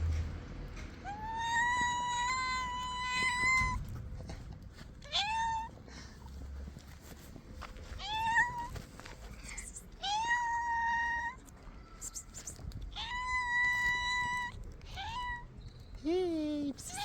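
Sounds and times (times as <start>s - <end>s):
cats meowing loudly: 1.0s - 3.8s, 5.0s - 5.8s, 8.0s - 8.8s, 10.0s - 11.4s, 12.9s - 15.5s.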